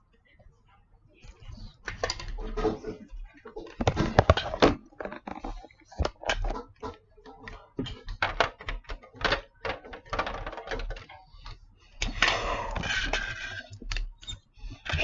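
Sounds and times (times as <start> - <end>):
plastic toys knocking together: 3.7 - 11.1.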